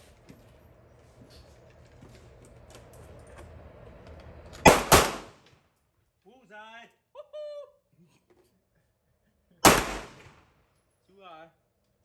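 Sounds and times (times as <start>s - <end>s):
handgun shots: 4.7s - 5.3s, 9.6s - 10.3s.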